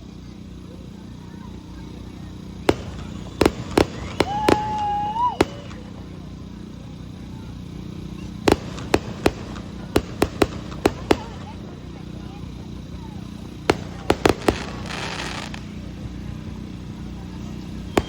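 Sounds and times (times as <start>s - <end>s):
fireworks bursting in sharp bangs: 0.4s - 18.0s
high rising whistle: 2.8s - 6.1s.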